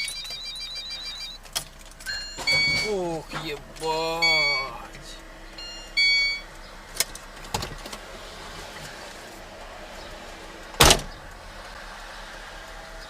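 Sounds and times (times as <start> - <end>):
short electronic beep: 0.0 - 1.4, 2.1 - 3.4, 4.2 - 4.9, 5.6 - 6.4
car road noise: 0.0 - 13.0.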